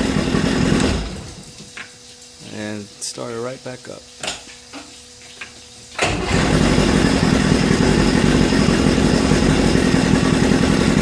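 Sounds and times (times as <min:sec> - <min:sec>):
outboard motor idling: 0:00.0 - 0:01.5, 0:06.0 - 0:11.0.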